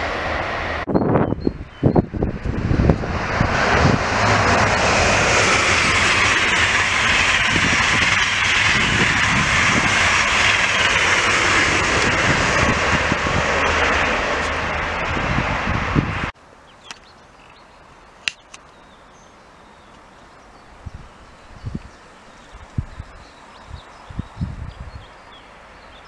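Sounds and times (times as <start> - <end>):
high-speed train passing: 0.0 - 16.7.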